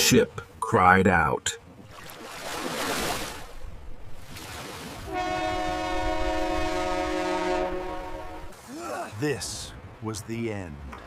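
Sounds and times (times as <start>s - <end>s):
ship's horn blast: 5.1s - 8.6s.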